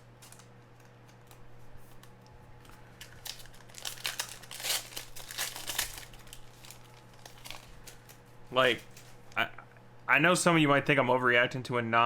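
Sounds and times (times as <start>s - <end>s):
packaging crinkling and rustling: 0.0s - 9.4s
steady low hum: 0.0s - 12.0s.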